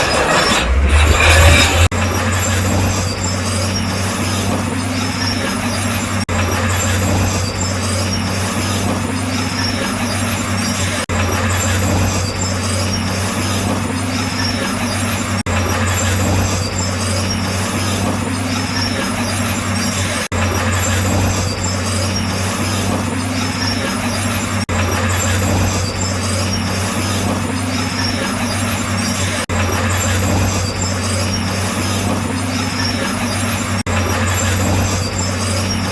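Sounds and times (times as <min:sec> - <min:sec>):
bulldozer diesel engine running: 0:00.0 - 0:10.5.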